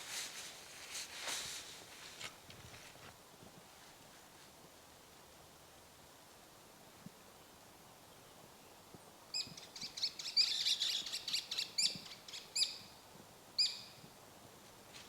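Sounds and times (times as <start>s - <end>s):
small songbird chirping: 9.4s - 12.9s, 13.6s - 14.0s.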